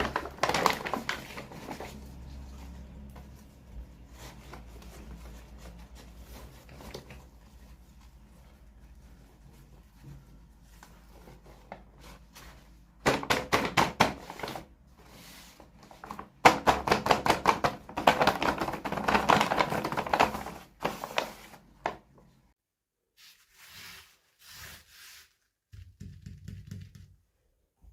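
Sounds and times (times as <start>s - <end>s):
packaging crackling: 0.0s - 2.0s.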